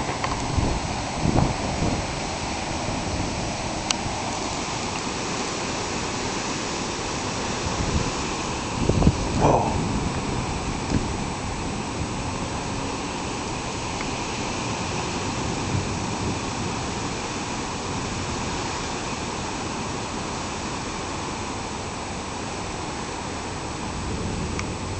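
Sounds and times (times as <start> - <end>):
wind blowing: 0.0 - 19.1.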